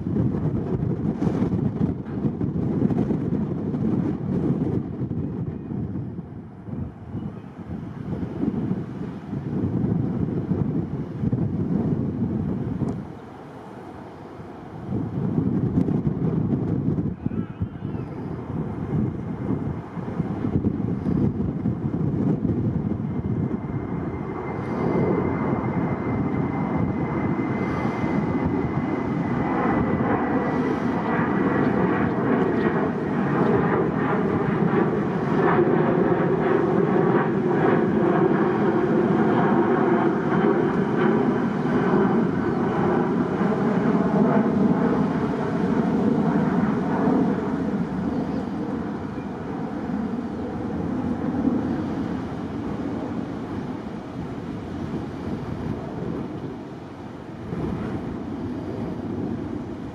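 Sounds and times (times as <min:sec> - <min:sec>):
jet engine roar: 0:00.0 - 0:59.9
high-pitched jet whine: 0:13.1 - 0:59.9.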